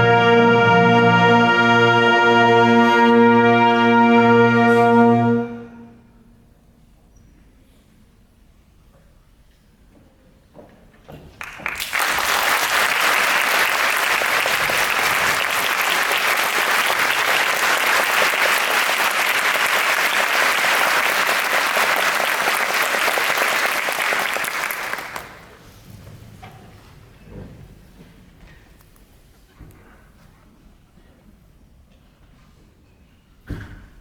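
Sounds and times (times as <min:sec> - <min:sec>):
audience applauding: 0:11.4 - 0:25.6.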